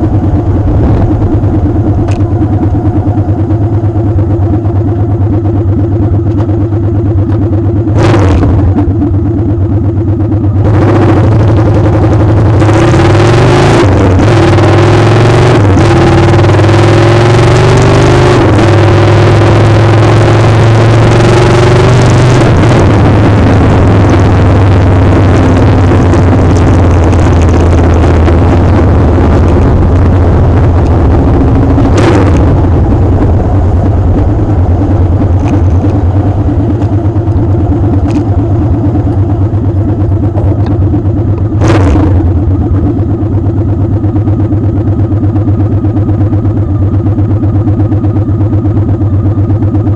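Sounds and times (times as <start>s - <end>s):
wind rush on microphone: 0.0s - 2.8s
motorcycle engine running: 0.0s - 49.9s.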